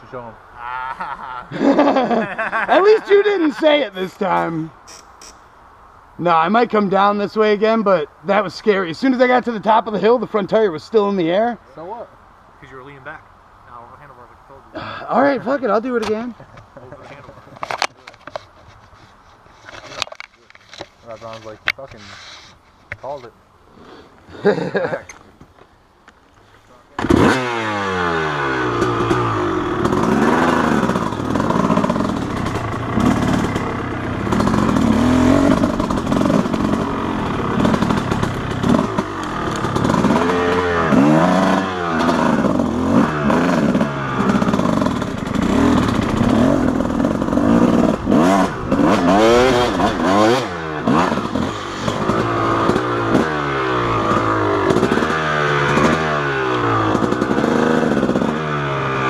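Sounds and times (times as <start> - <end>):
dirt bike engine revving: 27.0 - 59.0
bike clattering over rough ground: 28.7 - 43.5.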